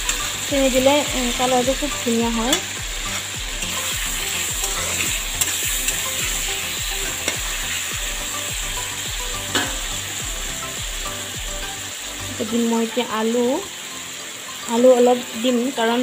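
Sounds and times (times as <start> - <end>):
chicken sizzling in hot oil: 0.0 - 16.0
metal spatula knocking pan: 9.5 - 9.9.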